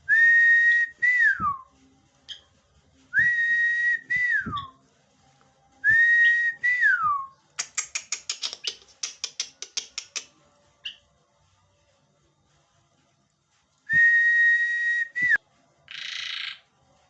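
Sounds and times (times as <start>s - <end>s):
starling whistle: 5.9s - 7.3s.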